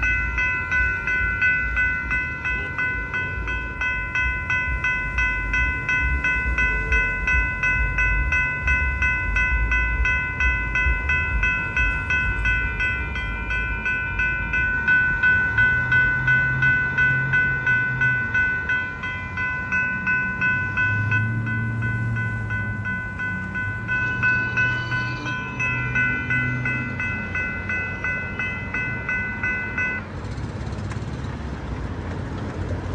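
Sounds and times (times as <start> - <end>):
railroad crossing bells ringing: 0.0 - 32.9.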